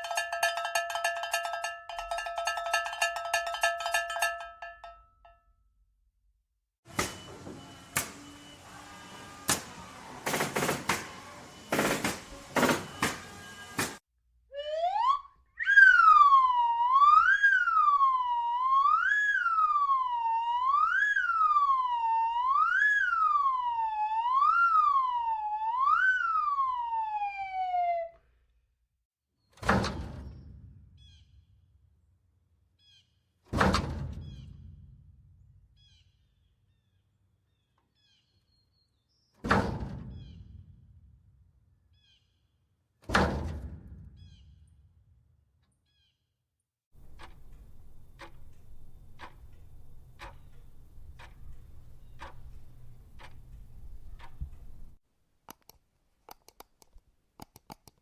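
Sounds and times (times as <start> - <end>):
siren wailing: 14.5 - 28.2.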